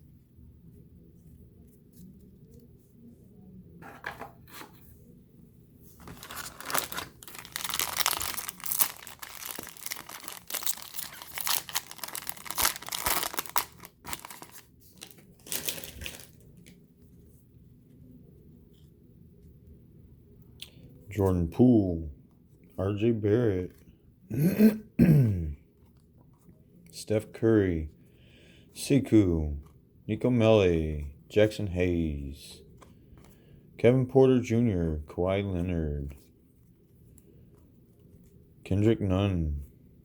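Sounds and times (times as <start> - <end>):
wrapper tearing and crinkling: 6.0 - 16.7.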